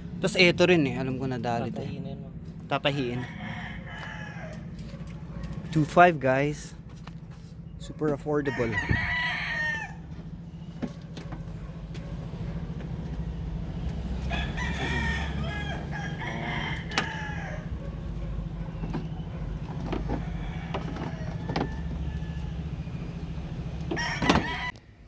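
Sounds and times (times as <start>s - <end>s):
rooster crowing: 2.9s - 5.9s, 8.4s - 10.3s, 14.1s - 24.8s
low mechanical hum: 8.6s - 25.0s.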